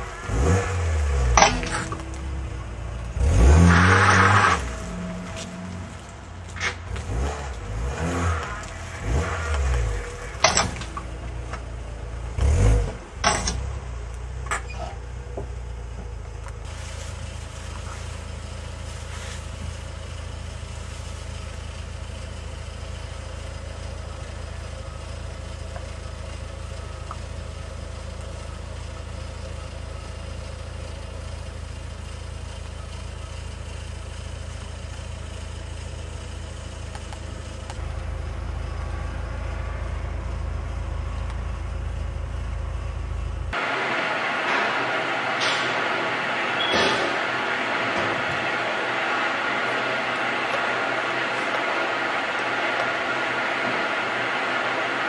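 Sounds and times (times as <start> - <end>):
car engine revving and idling: 0.0 - 55.0
sharp engine knocks: 9.4 - 11.7, 12.8 - 13.8, 44.4 - 49.4.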